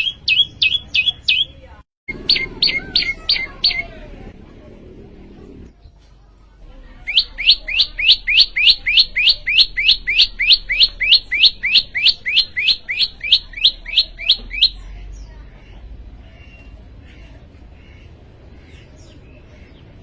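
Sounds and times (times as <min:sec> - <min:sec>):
bird singing rising notes: 0:00.0 - 0:04.0, 0:07.1 - 0:14.8.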